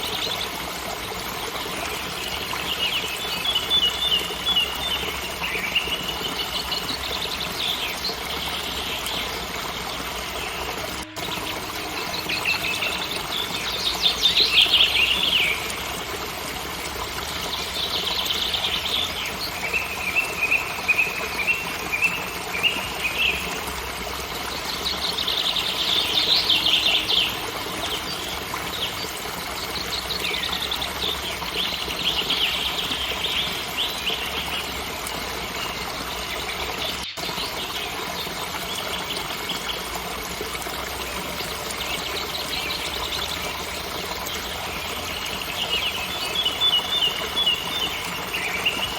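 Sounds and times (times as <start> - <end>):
songbirds singing: 0.0 - 16.2, 16.9 - 23.7, 24.3 - 48.9
waterfall rushing: 6.8 - 24.3.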